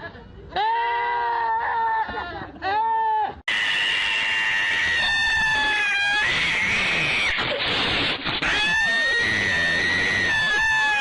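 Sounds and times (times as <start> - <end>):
cat yowling: 3.5 - 7.3, 8.4 - 11.0.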